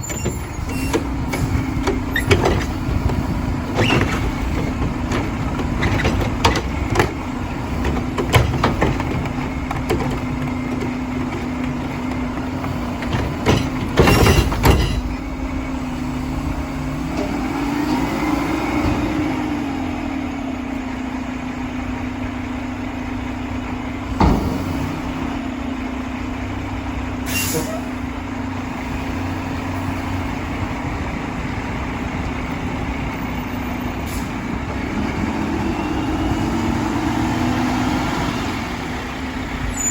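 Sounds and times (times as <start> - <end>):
garbage truck engine running: 0.0 - 39.9
air brake hiss: 27.3 - 27.9.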